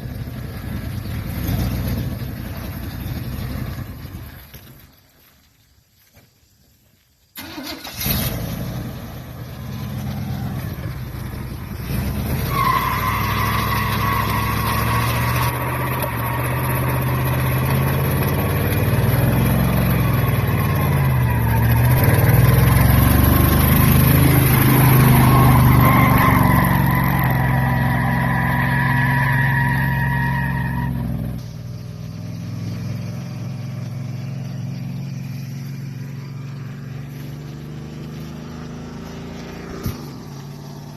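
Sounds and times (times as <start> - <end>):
pickup engine revving hard: 7.4 - 31.4, 32.0 - 40.9
tires squealing in burnout: 9.2 - 31.4.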